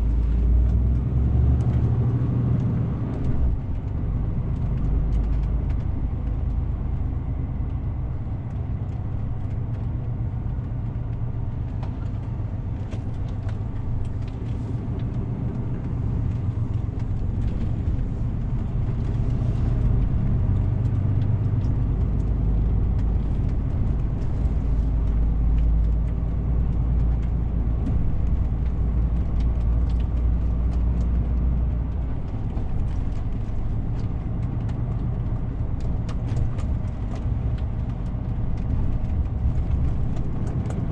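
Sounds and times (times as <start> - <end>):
tyre and road noise: 0.0 - 40.9.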